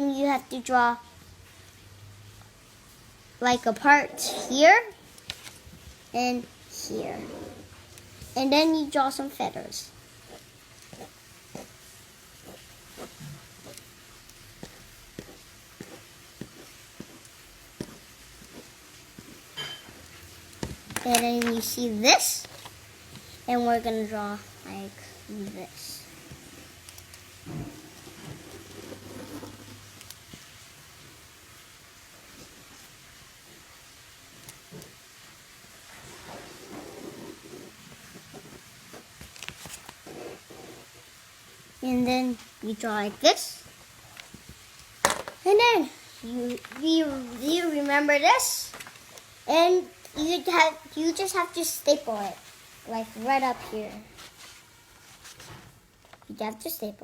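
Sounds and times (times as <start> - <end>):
steady hiss: 0.0 - 57.0
pencil drawing strokes on paper: 3.5 - 5.0, 5.8 - 30.7, 35.8 - 41.2, 45.5 - 48.7.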